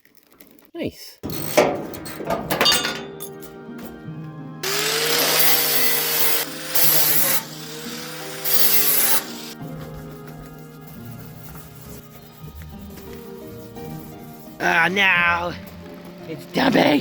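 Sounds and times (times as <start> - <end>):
background music: 1.2 - 17.0
small electric motor whirring: 4.6 - 9.6.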